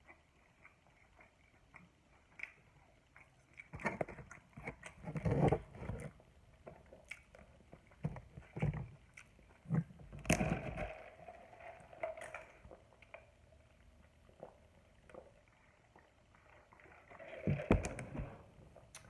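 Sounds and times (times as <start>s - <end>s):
wet chewing: 0.0s - 10.9s.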